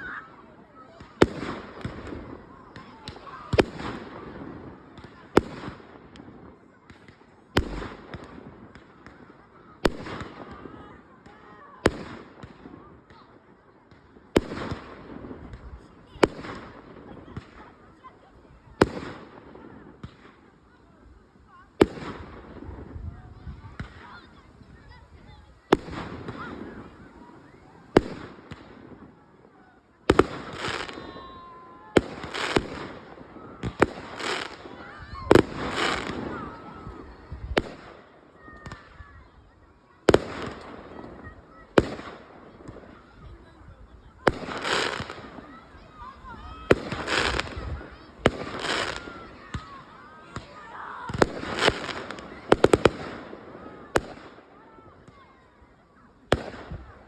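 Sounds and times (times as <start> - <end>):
firework crackle: 0.0 - 57.0.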